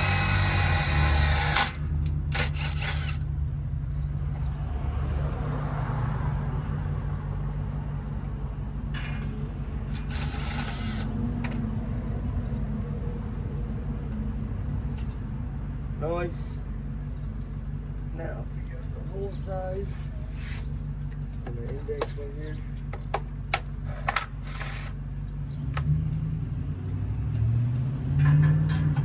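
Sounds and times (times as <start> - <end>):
short bursts of drilling: 0.0 - 1.8, 2.4 - 3.2, 10.1 - 11.1
power drill whine: 0.0 - 3.2, 10.1 - 11.1.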